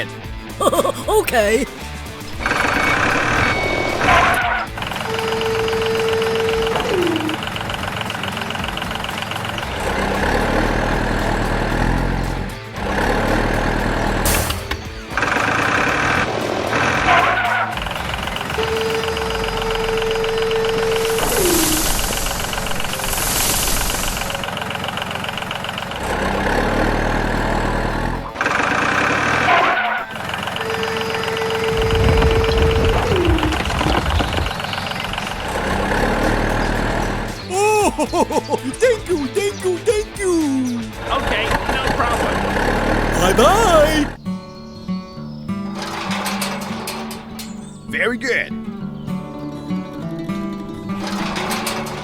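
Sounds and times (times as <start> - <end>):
vehicle engine running: 1.8 - 37.5
fast steady rattle: 2.0 - 21.3, 22.0 - 37.5, 45.8 - 47.9, 51.0 - 52.0
low engine rumble: 30.2 - 37.5.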